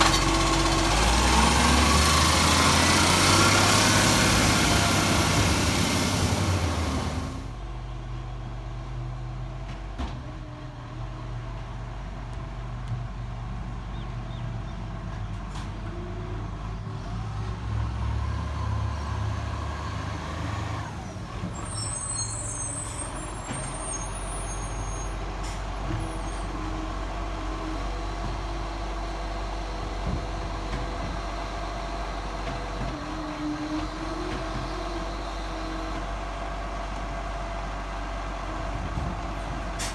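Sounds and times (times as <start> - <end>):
loud burst of noise: 0.0 - 7.5
diesel truck engine running: 0.0 - 8.4, 20.3 - 39.9.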